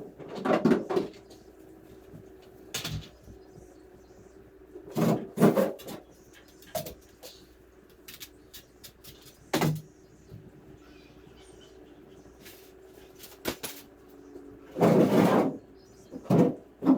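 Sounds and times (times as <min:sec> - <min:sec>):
faint steady hum: 0:00.0 - 0:16.9
objects knocking and clattering: 0:00.1 - 0:01.4.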